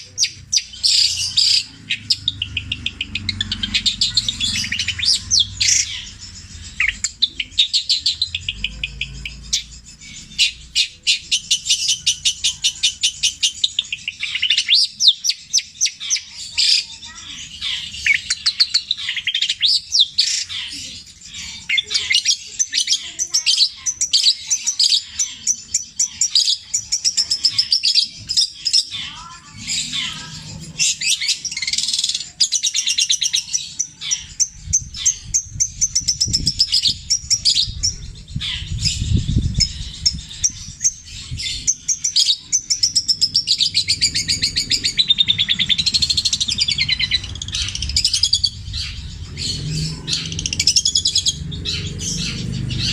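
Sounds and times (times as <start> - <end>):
bird singing chirps and trills: 0.0 - 52.9
low rumble: 34.5 - 41.8, 42.9 - 52.9.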